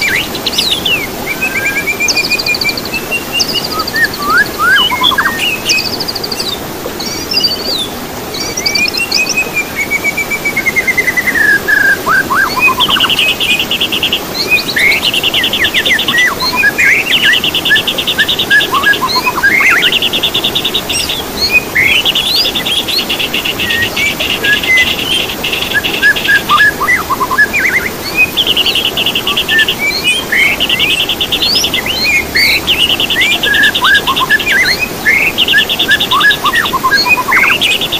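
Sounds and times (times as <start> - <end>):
songbird trills: 0.0 - 37.9.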